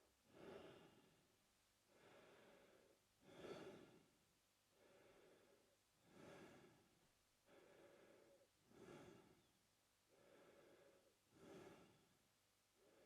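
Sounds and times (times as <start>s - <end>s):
man breathing through mouth: 1.9s - 4.0s, 4.8s - 6.8s, 7.5s - 9.4s, 10.1s - 12.1s.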